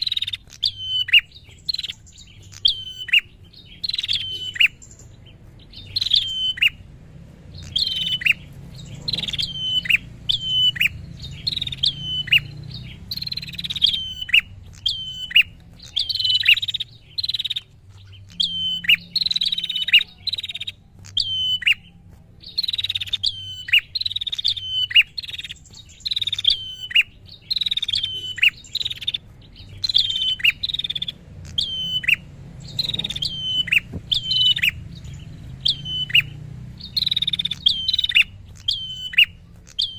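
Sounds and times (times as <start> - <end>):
bird high chirps dropping in pitch: 0.0 - 6.8, 7.6 - 39.9.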